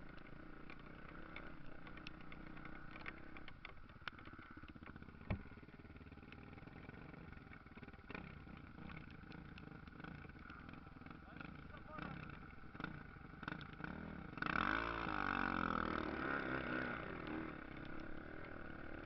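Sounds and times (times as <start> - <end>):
small clicks: 0.0 - 5.6, 7.3 - 13.8, 17.2 - 19.0
distant motorcycle engines: 0.0 - 19.0.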